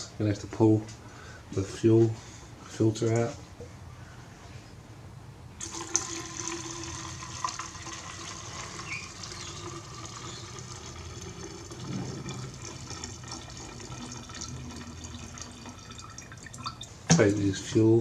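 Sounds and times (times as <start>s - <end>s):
fuel pouring into container: 5.6s - 17.0s.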